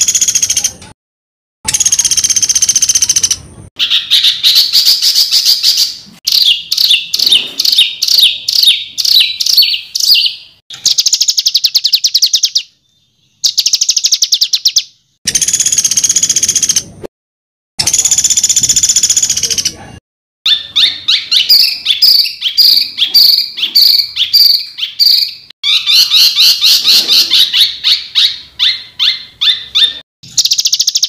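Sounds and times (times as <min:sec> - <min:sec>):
harsh buzzy bird calls: 0:20.5 - 0:31.0.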